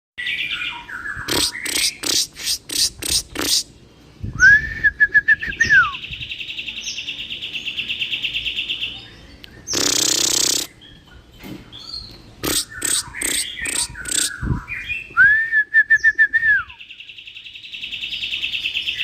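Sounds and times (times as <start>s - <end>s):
bird singing and trilling: 0.2s - 19.0s
harsh bird rasp: 1.2s - 3.8s, 9.7s - 10.8s, 12.4s - 14.7s.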